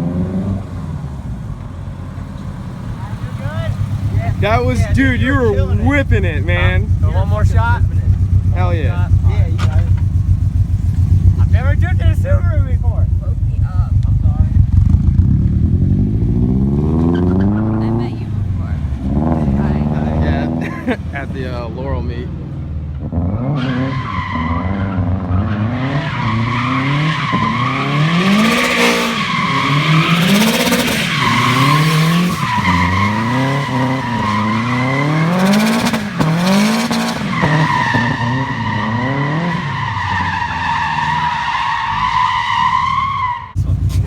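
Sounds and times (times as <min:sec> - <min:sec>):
car engine revving: 0:00.0 - 0:44.0
tyres squealing: 0:03.0 - 0:10.1, 0:23.4 - 0:44.0.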